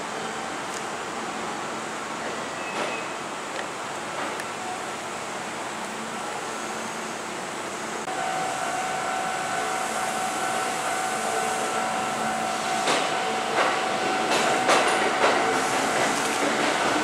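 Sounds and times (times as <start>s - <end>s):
electric train whine: 4.4s - 17.0s
wheel clacks over rail joints: 12.8s - 17.0s.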